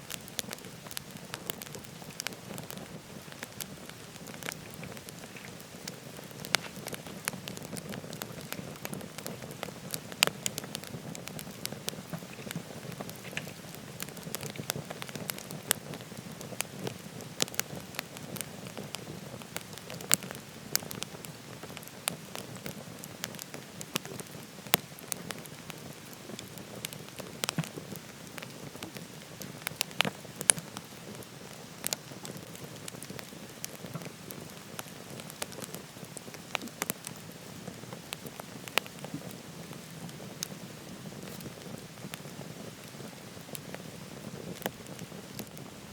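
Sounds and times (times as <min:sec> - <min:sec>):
wood fire crackling and popping: 0:00.0 - 0:45.9.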